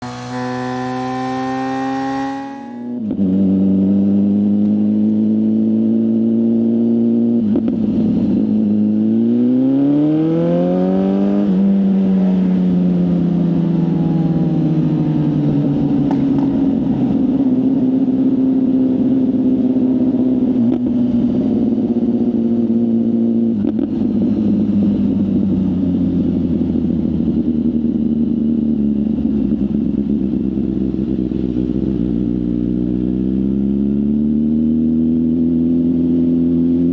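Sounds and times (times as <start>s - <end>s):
motorcycle engine accelerating: 0.0s - 36.9s.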